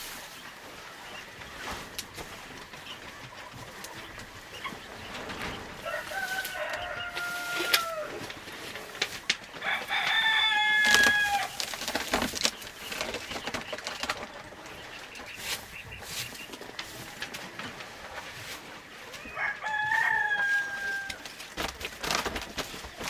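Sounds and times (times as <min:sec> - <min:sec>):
rooster crowing: 0:05.8 - 0:08.3, 0:09.6 - 0:11.6, 0:19.2 - 0:21.3.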